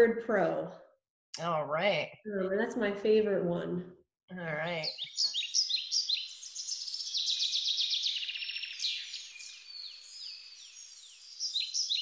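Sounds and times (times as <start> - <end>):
songbirds singing: 4.4 - 12.0.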